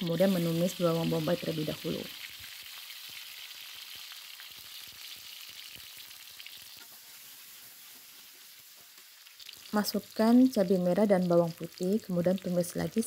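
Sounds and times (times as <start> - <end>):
onion sizzling in hot oil: 0.0 - 13.0
spatula stirring: 6.4 - 9.7.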